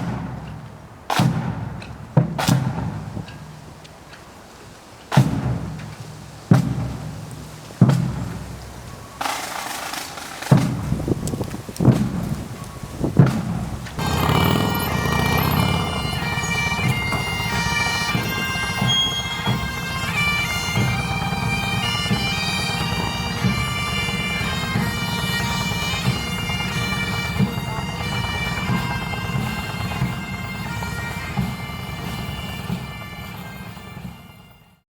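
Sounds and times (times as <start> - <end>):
bagpipes playing: 14.0 - 34.8.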